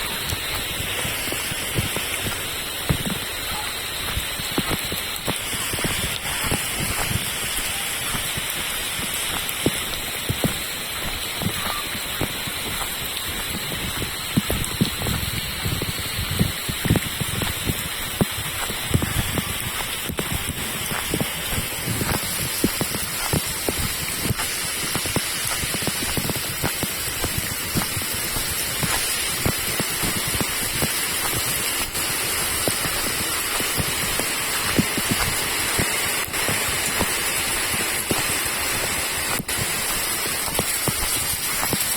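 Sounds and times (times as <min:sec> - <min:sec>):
close raindrop hits: 0:00.0 - 0:41.9
steady rain falling: 0:00.0 - 0:41.9.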